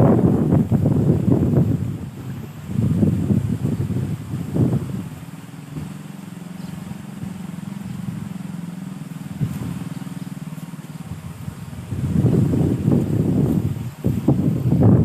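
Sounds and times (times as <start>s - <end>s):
small engine running: 2.2s - 14.7s.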